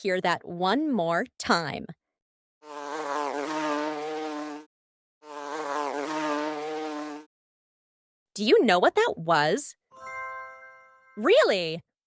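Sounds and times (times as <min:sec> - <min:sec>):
bumblebee buzzing: 0:02.6 - 0:07.3.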